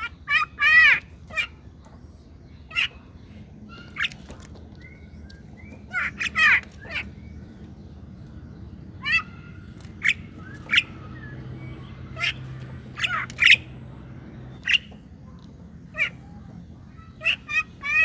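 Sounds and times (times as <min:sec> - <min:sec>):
bird squawking: 0:00.0 - 0:01.7, 0:02.6 - 0:05.0, 0:05.7 - 0:07.3, 0:08.9 - 0:13.8, 0:14.5 - 0:15.0, 0:15.8 - 0:18.0.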